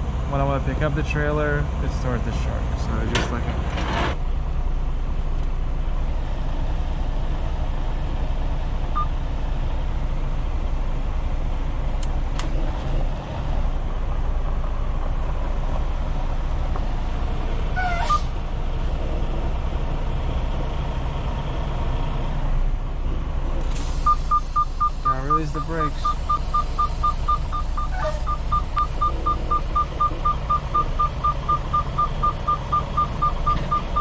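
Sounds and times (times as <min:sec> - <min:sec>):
diesel engine idling: 0:00.0 - 0:03.5, 0:04.2 - 0:34.0
short beeps: 0:24.0 - 0:34.0.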